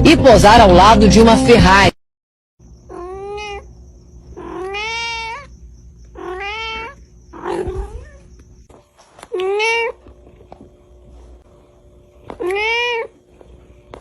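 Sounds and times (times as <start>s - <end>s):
cat meowing: 2.9s - 8.3s, 9.3s - 10.0s, 12.3s - 13.2s.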